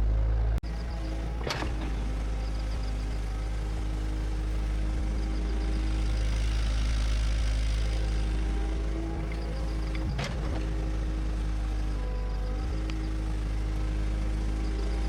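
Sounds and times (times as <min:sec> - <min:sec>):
bulldozer engine droning: 0:00.0 - 0:15.0.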